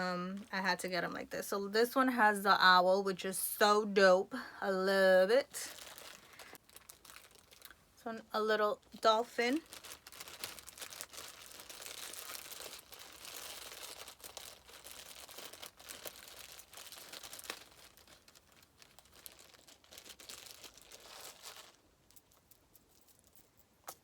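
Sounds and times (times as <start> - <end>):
plastic packaging crinkling: 5.3 - 7.8, 8.4 - 24.0.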